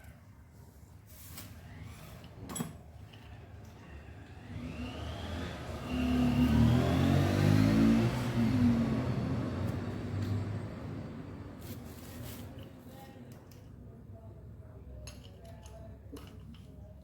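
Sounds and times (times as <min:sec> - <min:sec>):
scooter engine revving: 0:04.4 - 0:11.5.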